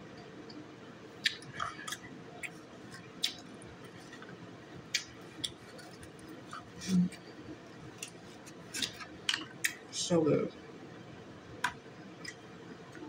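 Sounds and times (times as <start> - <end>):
wet chewing clicks and smacks: 1.2 - 7.2, 11.6 - 13.0.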